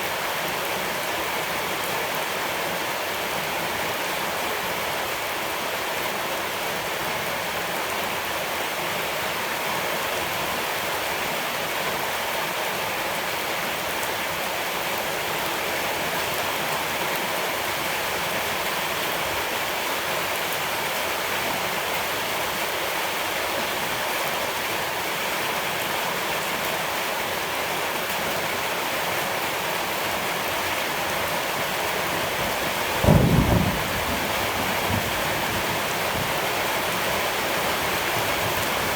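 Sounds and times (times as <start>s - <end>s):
flowing water rushing: 0.0s - 38.9s
low thump: 33.0s - 34.0s.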